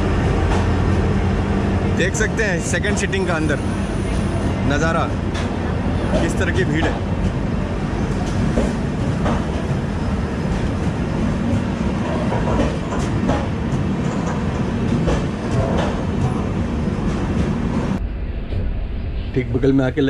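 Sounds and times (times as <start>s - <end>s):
train wheels rumbling on rails: 0.0s - 20.0s
wheels clacking over rail joints: 5.1s - 17.5s.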